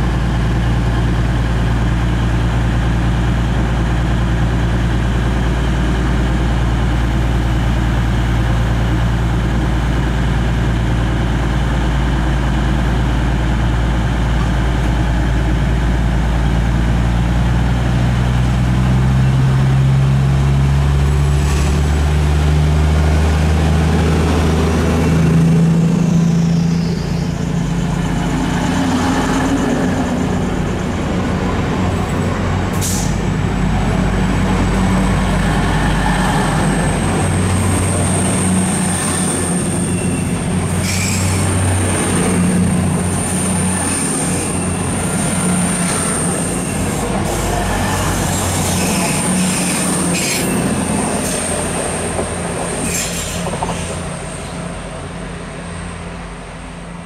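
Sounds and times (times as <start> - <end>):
diesel train engines running: 0.0 - 57.0.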